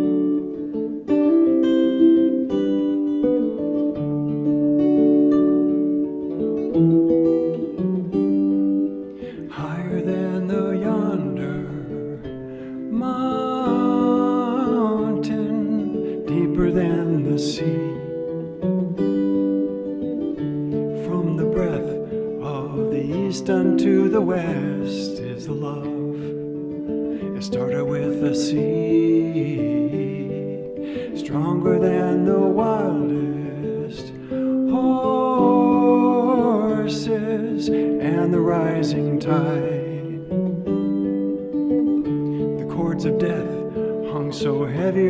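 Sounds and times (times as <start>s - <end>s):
acoustic guitar strumming chords: 0.0s - 45.0s
man singing slow song: 9.1s - 18.7s, 20.8s - 41.0s, 42.2s - 45.0s.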